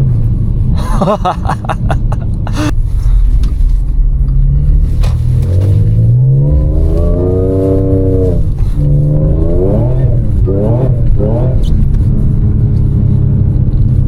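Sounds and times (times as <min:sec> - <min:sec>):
car engine accelerating hard: 0:03.4 - 0:14.0.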